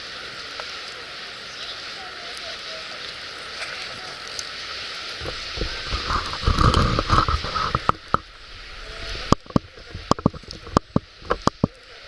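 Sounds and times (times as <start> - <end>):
campfire popping and crackling: 2.0 - 12.0
wind buffeting microphone: 5.0 - 11.7.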